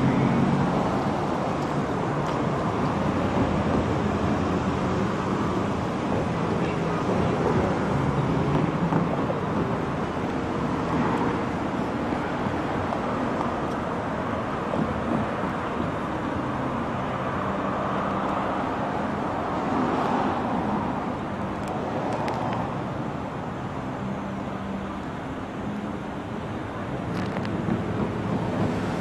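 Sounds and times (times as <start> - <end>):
train rumbling: 0.0 - 16.1, 26.9 - 29.0
locomotive engines droning: 0.0 - 29.0.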